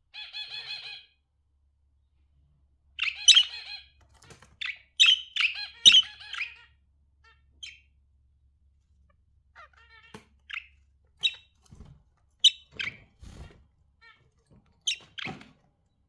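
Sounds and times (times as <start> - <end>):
budgerigars chirping: 0.2 - 1.1, 3.0 - 4.0, 4.6 - 7.9, 9.6 - 11.6, 12.4 - 13.4, 14.8 - 15.4.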